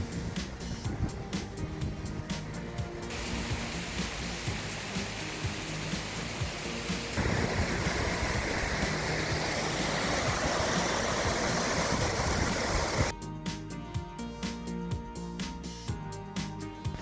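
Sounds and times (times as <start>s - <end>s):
rushing water roar: 0.0s - 13.1s
background music: 0.0s - 17.0s.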